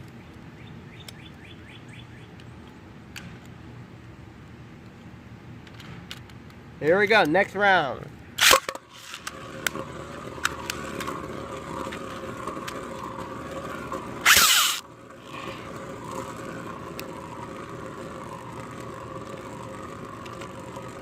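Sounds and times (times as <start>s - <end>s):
spinning tops whirring: 8.4s - 21.0s
loud rasping burst: 14.2s - 15.7s.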